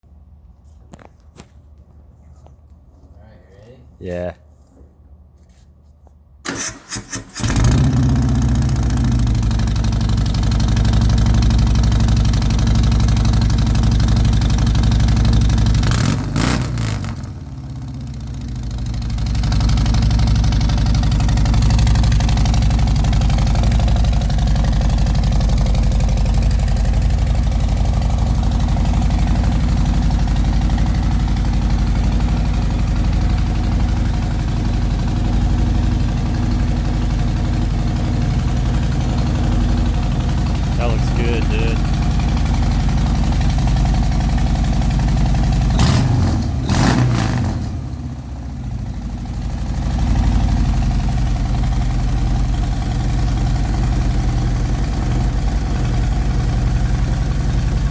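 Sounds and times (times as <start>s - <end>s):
starter motor cranking: 6.5s - 8.0s
motorcycle engine deep idle: 7.8s - 15.9s, 17.4s - 45.9s, 47.8s - 57.9s.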